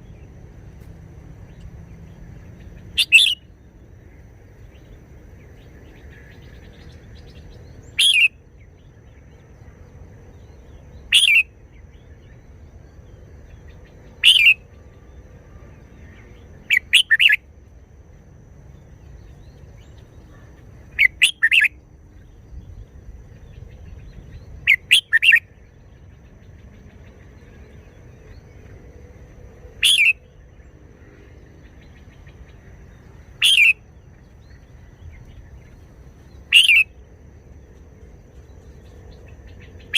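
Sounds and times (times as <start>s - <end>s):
faint low hum: 0.0s - 39.9s
bird singing whistled phrases: 3.0s - 3.5s, 7.9s - 8.4s, 11.1s - 11.5s, 14.2s - 14.6s, 16.7s - 17.4s, 21.0s - 21.8s, 24.7s - 25.4s, 29.8s - 30.2s, 33.4s - 33.8s, 36.5s - 36.9s.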